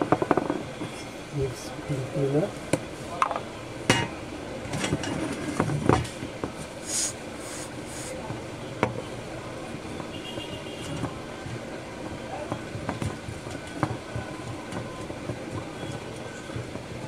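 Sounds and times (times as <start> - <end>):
aerosol spray hissing: 6.8 - 8.2.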